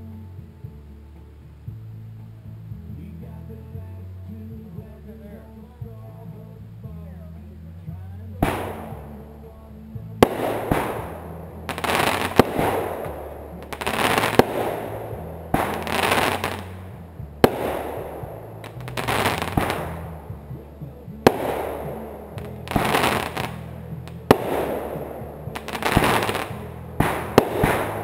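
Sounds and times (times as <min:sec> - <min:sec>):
fireworks banging: 0:08.4 - 0:28.0
fireworks hissing crackle: 0:10.2 - 0:28.0.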